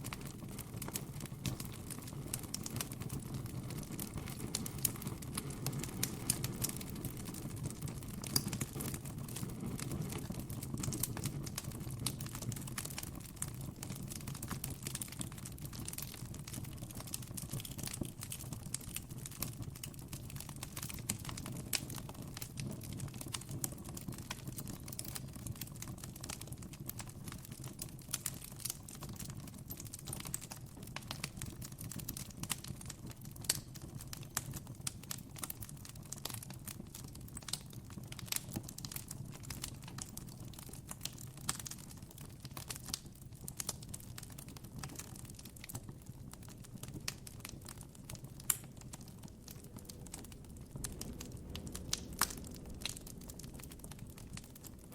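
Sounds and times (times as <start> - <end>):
campfire crackling: 0.0 - 54.9
low background rumble: 47.9 - 54.9.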